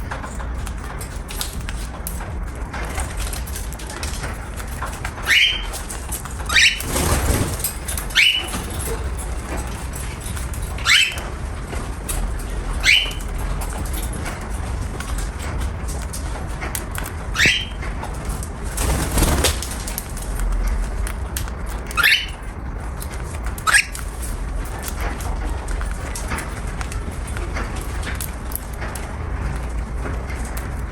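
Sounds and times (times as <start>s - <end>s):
cockatiel chirping: 5.3s - 5.9s, 6.5s - 7.2s, 8.1s - 8.6s, 10.8s - 11.3s, 12.8s - 13.3s, 17.3s - 17.8s, 21.9s - 22.4s, 23.6s - 24.0s.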